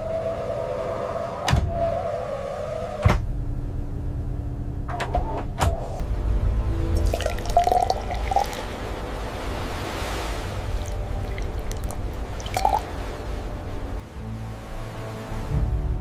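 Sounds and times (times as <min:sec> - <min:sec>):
background music: 0:05.8 - 0:16.0
water sounds: 0:06.0 - 0:15.6.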